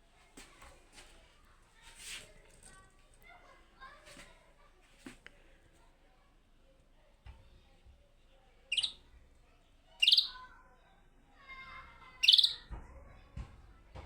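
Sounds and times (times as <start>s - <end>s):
bird twittering: 8.7s - 9.0s, 10.0s - 10.4s, 12.2s - 12.7s
goldfinch high-pitched calls: 8.7s - 9.0s, 10.0s - 10.4s, 12.2s - 12.6s.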